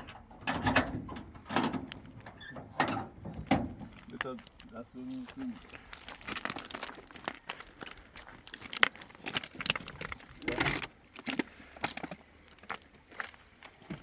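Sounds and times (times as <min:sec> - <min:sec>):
stones clacking together: 0:03.4 - 0:12.7.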